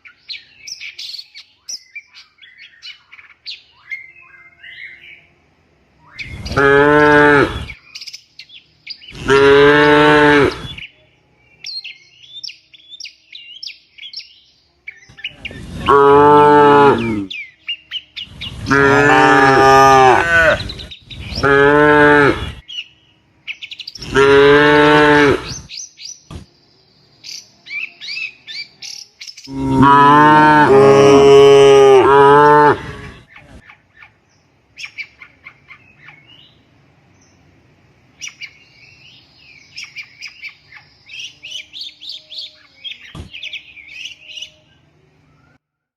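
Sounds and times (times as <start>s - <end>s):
birds chirping: 0.0s - 45.6s
cattle mooing: 6.4s - 7.8s, 9.2s - 10.7s, 15.7s - 17.3s, 18.6s - 20.7s, 21.3s - 22.6s, 24.0s - 25.6s, 29.5s - 33.2s.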